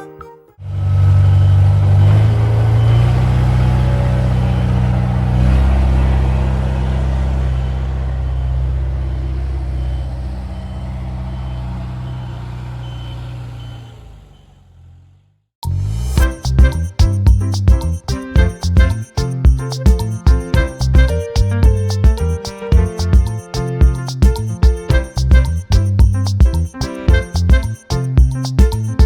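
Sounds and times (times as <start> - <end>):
heavy vehicle engine running: 0.6 - 15.3, 19.9 - 27.7
reverse warning beeps: 1.0 - 4.7, 5.4 - 14.6.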